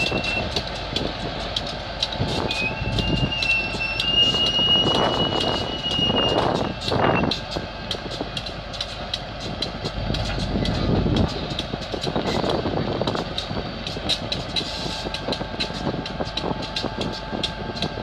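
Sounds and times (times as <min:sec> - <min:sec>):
locomotive engine and wheel rumble: 0:00.0 - 0:18.0
light ticks: 0:00.1 - 0:02.4, 0:06.8 - 0:12.3.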